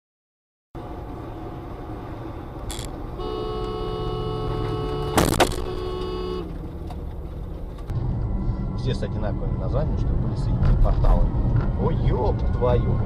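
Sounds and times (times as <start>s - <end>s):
road and engine noise: 0.8s - 13.0s
car horn: 2.7s - 6.7s.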